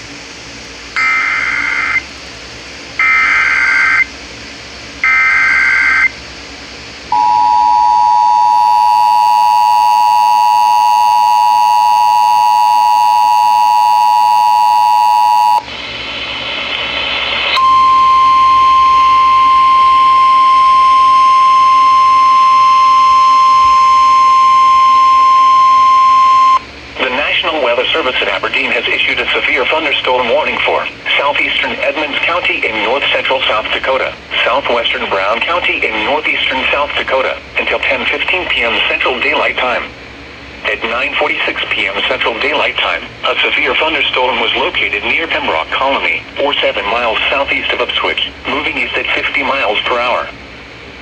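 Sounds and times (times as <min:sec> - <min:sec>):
screeching digital data bursts: 0:01.0 - 0:02.0, 0:03.0 - 0:04.1, 0:05.0 - 0:06.1
two-tone attention signal: 0:07.1 - 0:15.7, 0:17.6 - 0:26.6
steady alert tone: 0:17.6 - 0:26.6.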